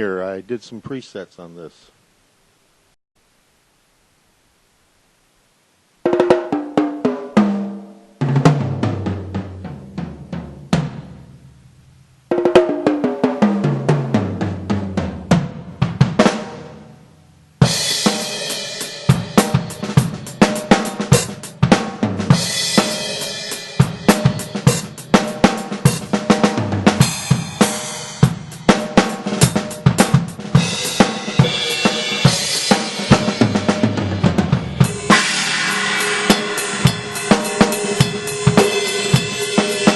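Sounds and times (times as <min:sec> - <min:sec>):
electronic drum tom runs: 0:06.0 - 0:11.7, 0:12.3 - 0:16.9, 0:17.6 - 0:39.9
drum kit groove: 0:06.0 - 0:39.9
crashing cymbals: 0:17.6 - 0:39.9.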